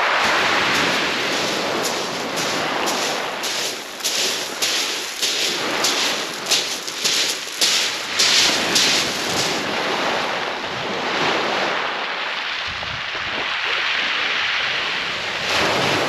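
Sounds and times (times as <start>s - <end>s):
wind on microphone: 0.0s - 16.0s
sea waves breaking on shingle: 0.1s - 10.3s.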